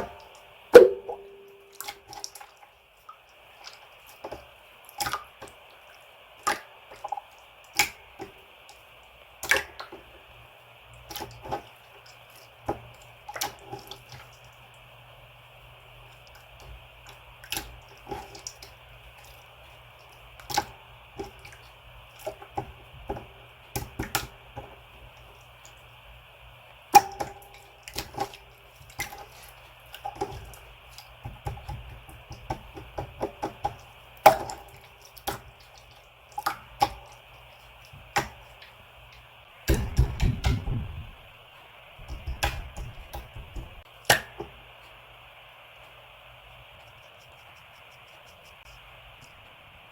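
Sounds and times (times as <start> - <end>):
low rumbling handling noise: 39.2 - 44.8.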